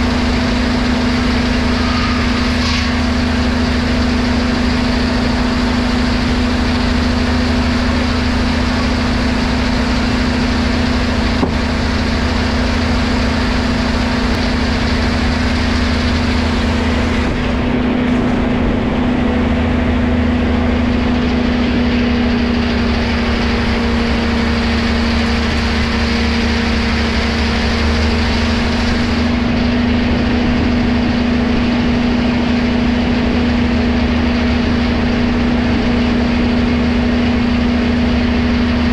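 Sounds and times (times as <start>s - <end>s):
sawmill machinery hum: 0.0s - 38.9s.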